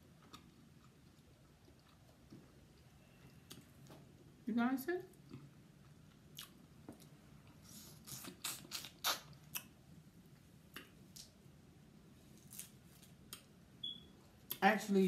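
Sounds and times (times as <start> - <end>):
lip smacks and wet chewing: 5.2 - 9.8.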